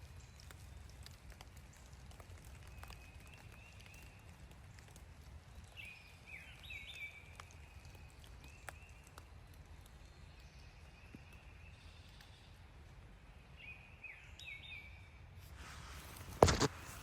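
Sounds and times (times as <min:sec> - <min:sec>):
raindrop ticks: 0:00.0 - 0:13.0.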